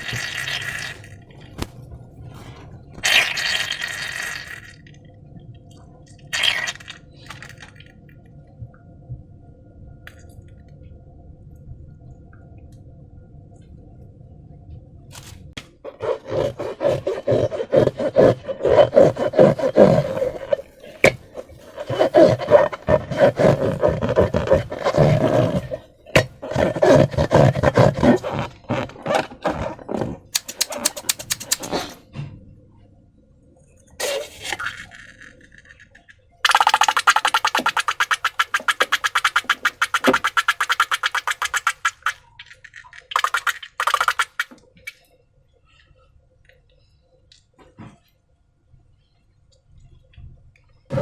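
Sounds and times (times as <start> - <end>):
faint steady hum: 0.0 - 51.0
slime squishing by hand: 15.9 - 31.9, 36.4 - 42.2
quick clicks: 30.4 - 31.8.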